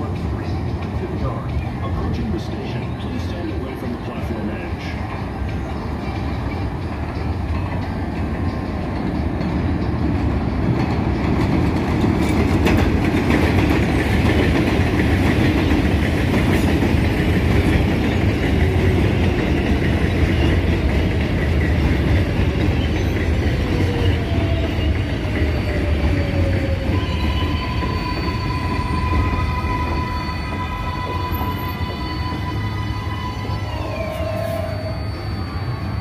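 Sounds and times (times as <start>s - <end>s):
train wheels rumbling on rail: 0.0s - 36.0s
thin wheel squeals: 30.0s - 36.0s.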